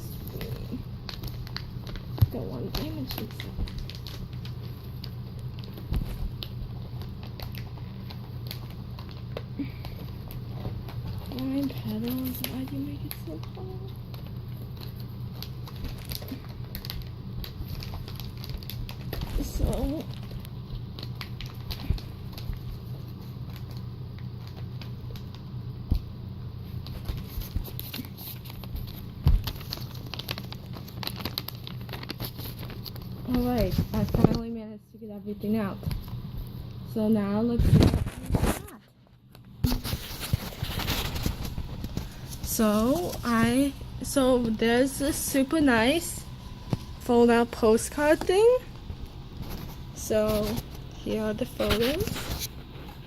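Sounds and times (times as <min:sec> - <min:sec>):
plastic packaging crinkling: 0:00.0 - 0:34.4, 0:37.6 - 0:53.0
steady low hum: 0:00.0 - 0:53.0.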